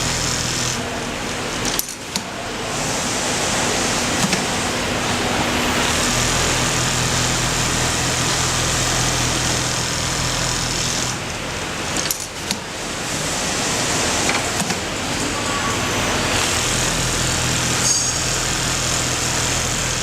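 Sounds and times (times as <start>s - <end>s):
sewing machine stitching: 1.6s - 11.2s.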